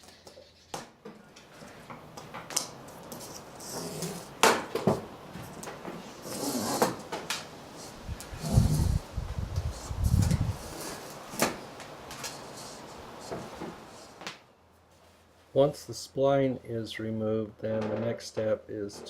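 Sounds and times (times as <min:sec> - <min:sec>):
rubber spline scraping out of groove: 0:06.2 - 0:07.0, 0:07.8 - 0:09.0.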